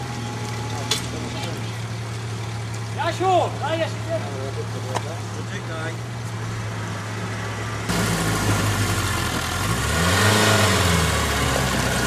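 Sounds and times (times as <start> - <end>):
engine revving hard: 7.9 - 12.0.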